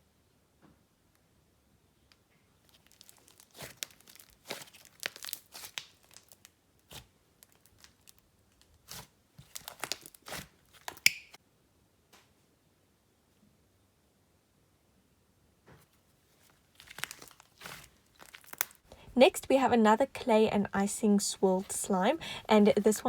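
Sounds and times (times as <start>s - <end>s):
slime squished by hand: 2.7s - 8.2s, 8.8s - 11.4s, 16.8s - 18.8s.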